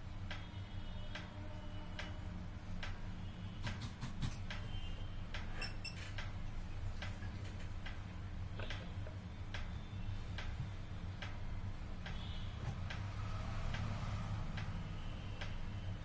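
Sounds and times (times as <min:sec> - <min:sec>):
regular ticking: 0:01.9 - 0:03.4, 0:05.3 - 0:16.0.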